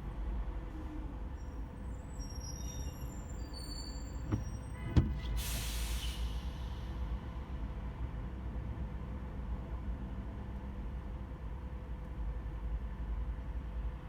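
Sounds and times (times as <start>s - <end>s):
city traffic rumble: 0.0s - 14.0s
faint high squeals: 1.4s - 4.9s
bus air brakes hissing: 2.2s - 7.4s.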